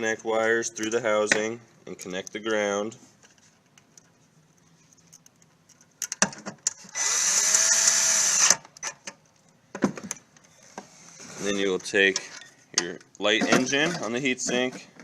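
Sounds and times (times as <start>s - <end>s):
power drill spinning: 6.8s - 8.6s.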